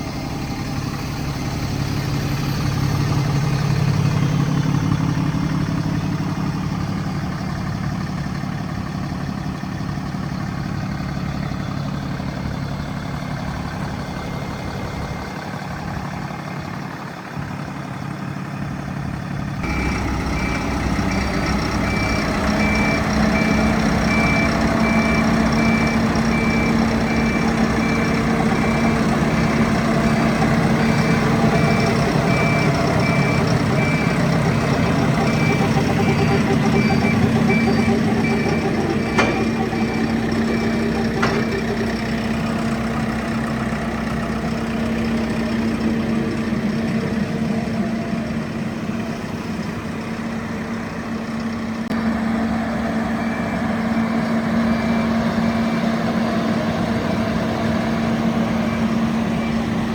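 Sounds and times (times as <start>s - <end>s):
diesel engine running: 0.0s - 59.9s
reversing alarm beeping: 19.6s - 43.8s, 52.4s - 59.9s.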